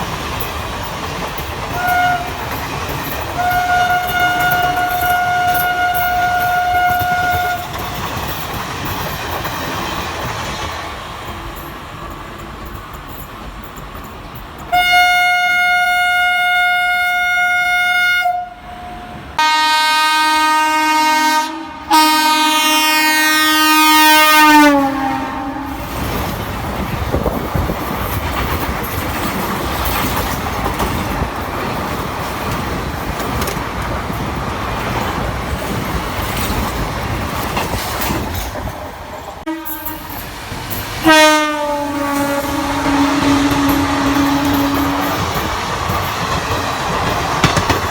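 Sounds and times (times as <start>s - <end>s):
train wheels clattering on rails: 0.0s - 15.8s, 23.6s - 47.9s
train horn blasts: 1.7s - 2.5s, 3.4s - 7.8s, 14.7s - 26.0s, 39.4s - 40.2s, 41.0s - 45.4s.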